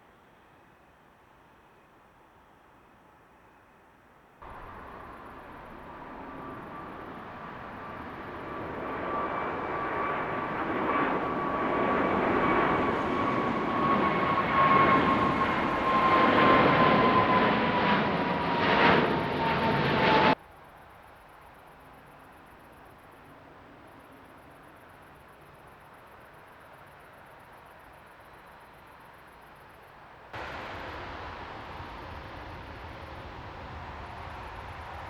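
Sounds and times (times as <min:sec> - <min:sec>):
high fan whine: 0:04.4 - 0:17.3, 0:30.4 - 0:35.0
jet engines roaring: 0:04.4 - 0:20.4, 0:30.4 - 0:35.0.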